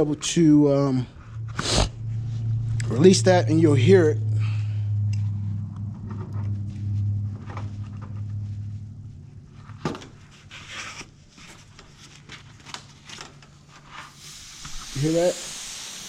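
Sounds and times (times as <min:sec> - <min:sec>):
steady low hum: 0:00.0 - 0:13.9
gas hissing: 0:01.2 - 0:02.2, 0:14.1 - 0:16.0.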